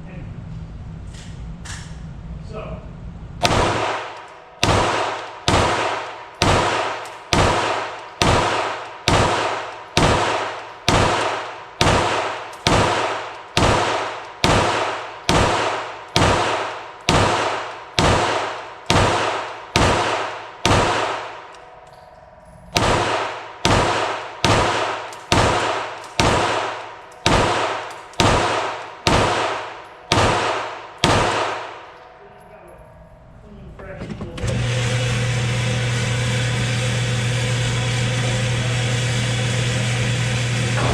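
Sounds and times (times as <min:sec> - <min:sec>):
pistol shots: 0:03.4 - 0:21.6, 0:22.7 - 0:32.0.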